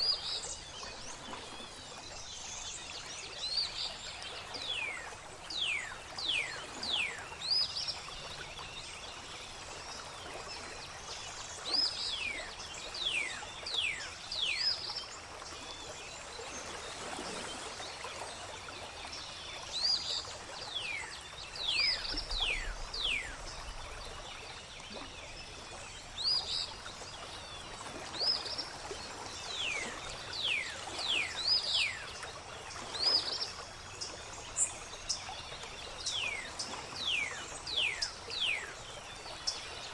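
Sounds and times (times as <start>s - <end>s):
flowing water: 0.0s - 39.9s
songbirds calling: 19.1s - 39.9s.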